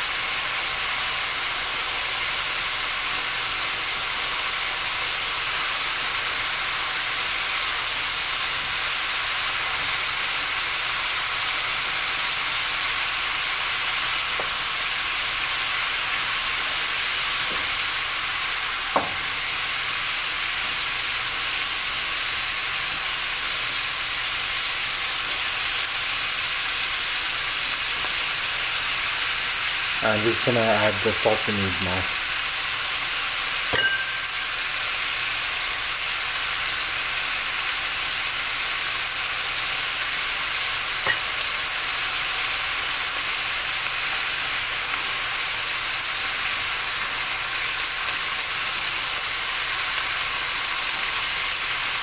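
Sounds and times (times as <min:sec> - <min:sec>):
vegetables sizzling in hot oil: 0:00.0 - 0:52.0
sharp tap: 0:19.0 - 0:19.2.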